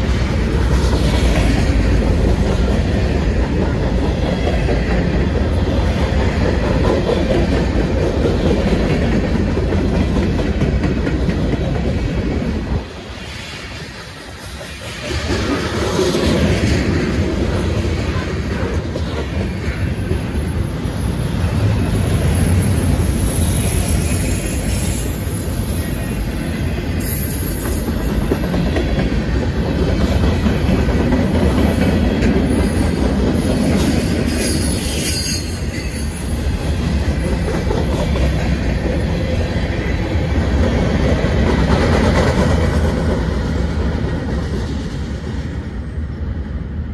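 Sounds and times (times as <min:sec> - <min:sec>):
freight train wheels rumbling: 0:00.0 - 0:46.9
high wheel squeals: 0:21.0 - 0:26.4, 0:27.0 - 0:28.0, 0:34.0 - 0:36.4.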